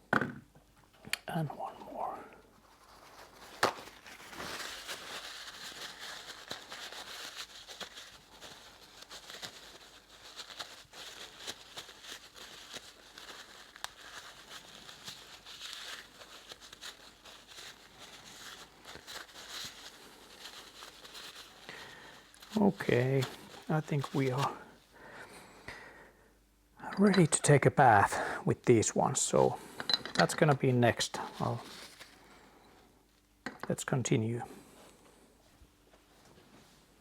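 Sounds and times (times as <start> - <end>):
rustling and crinkling: 2.4 - 24.9, 29.2 - 33.3, 34.6 - 37.0.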